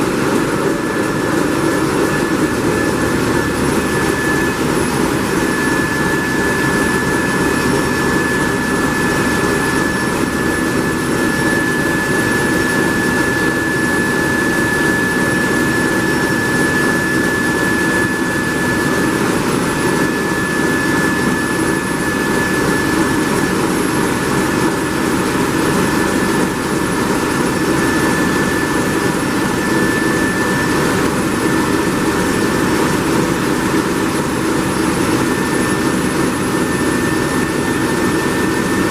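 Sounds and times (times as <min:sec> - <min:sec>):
large diesel engine running: 0:00.0 - 0:12.5
steady high whine: 0:00.0 - 0:38.9.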